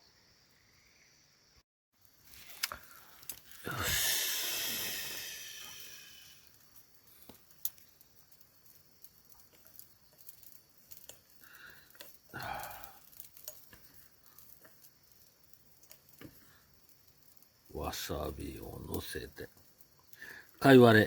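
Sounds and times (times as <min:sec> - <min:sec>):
soft rustle: 0:02.0 - 0:03.7.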